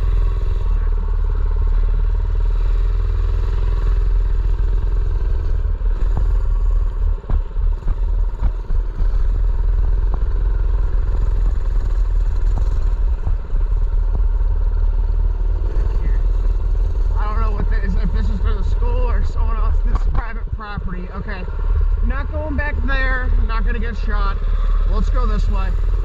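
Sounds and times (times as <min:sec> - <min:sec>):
mini bike engine running: 0:00.0 - 0:26.0
wind rumble on microphone: 0:00.0 - 0:26.0
bike rattles and knocks: 0:06.0 - 0:14.6.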